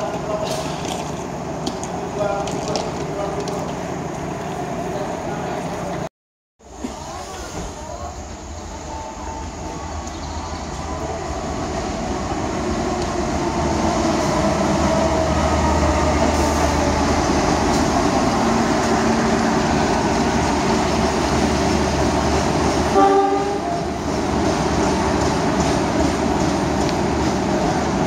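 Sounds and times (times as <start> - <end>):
wheel-on-rail noise: 0.0 - 6.0.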